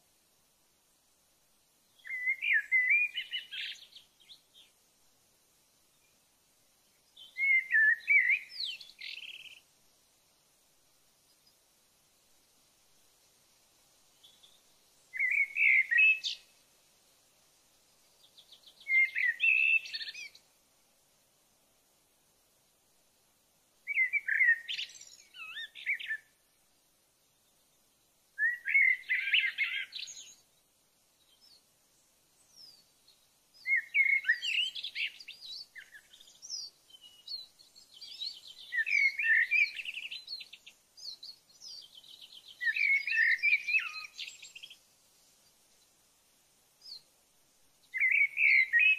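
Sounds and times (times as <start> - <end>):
songbird warbling: 2.0 - 4.7, 7.2 - 9.6, 14.2 - 16.5, 18.3 - 20.4, 23.9 - 26.4, 28.4 - 30.4, 33.6 - 44.8, 47.8 - 48.9.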